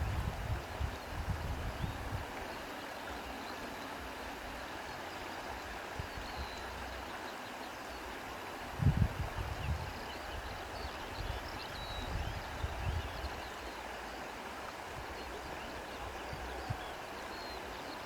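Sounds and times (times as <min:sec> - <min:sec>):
wind bumps on microphone: 0:00.0 - 0:02.2, 0:08.8 - 0:10.0.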